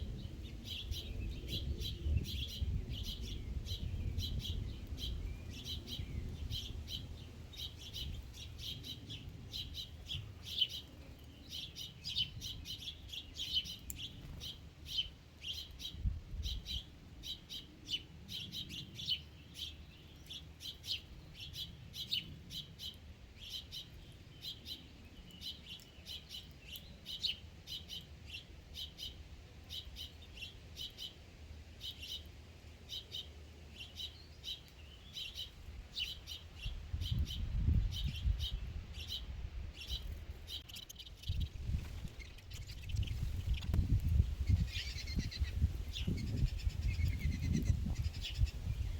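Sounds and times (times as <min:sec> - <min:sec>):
birds chirping: 0:00.0 - 0:31.2, 0:32.9 - 0:48.9.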